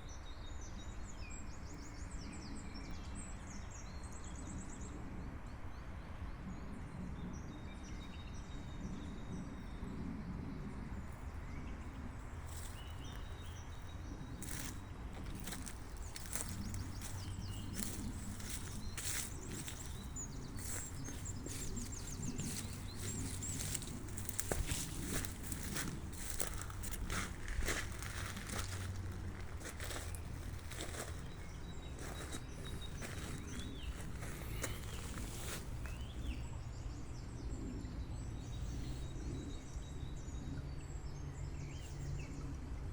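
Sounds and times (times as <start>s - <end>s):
low steady rumble: 10.9s - 37.8s
birds chirping: 12.3s - 36.9s.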